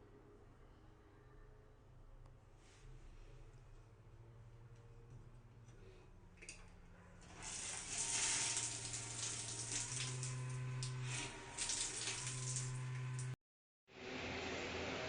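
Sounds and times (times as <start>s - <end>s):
low steady hum: 0.0s - 13.4s
shower water spraying: 7.3s - 13.4s.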